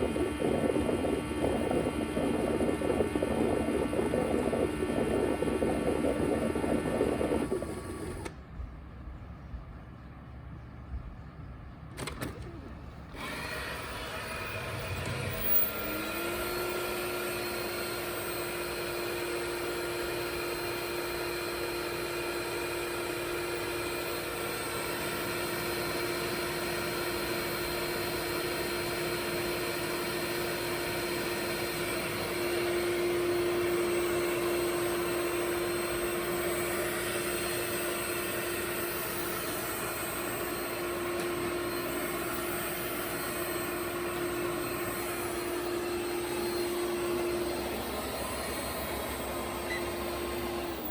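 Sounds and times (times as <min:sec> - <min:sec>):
robot vacuum motor whirring: 0:00.0 - 0:08.3, 0:13.1 - 0:21.2, 0:29.1 - 0:50.9.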